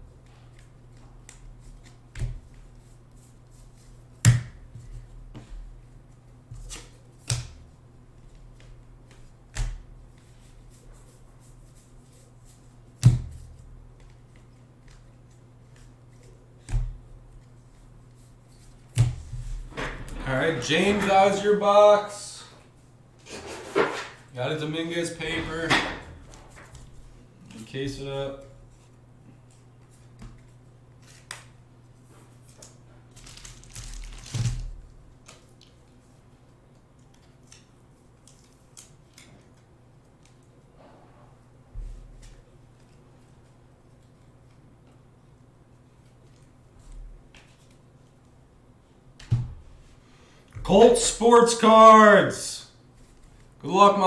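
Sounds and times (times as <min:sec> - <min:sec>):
packaging rustling and crinkling: 0:32.5 - 0:35.6.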